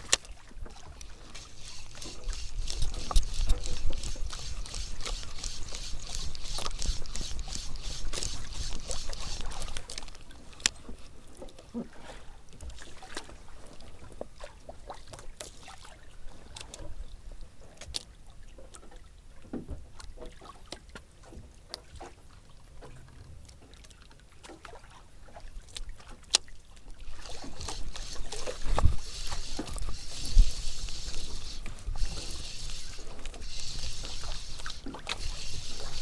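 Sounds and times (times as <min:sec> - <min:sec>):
rushing water or wind: 0:00.0 - 0:11.4, 0:20.4 - 0:36.0
water lapping against boat hull: 0:00.0 - 0:36.0.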